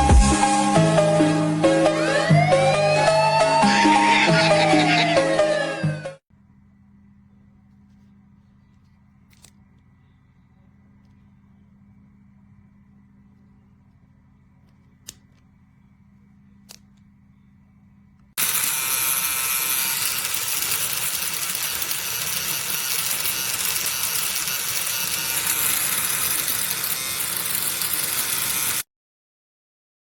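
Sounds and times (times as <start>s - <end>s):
electric shaver buzzing: 18.4s - 28.9s.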